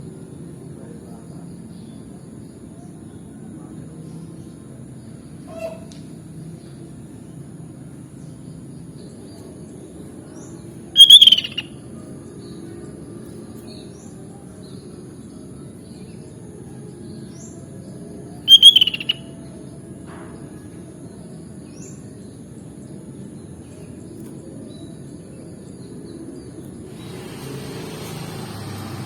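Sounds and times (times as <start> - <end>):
faint short chirps: 11.0 - 11.6, 18.5 - 19.2
bird call notes: 11.0 - 11.7, 18.5 - 19.3.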